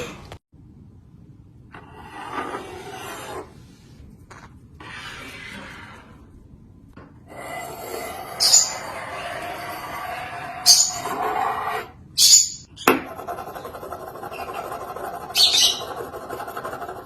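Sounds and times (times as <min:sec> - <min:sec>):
rasping scraping sound: 0:01.7 - 0:04.0, 0:04.8 - 0:06.3, 0:07.3 - 0:12.0.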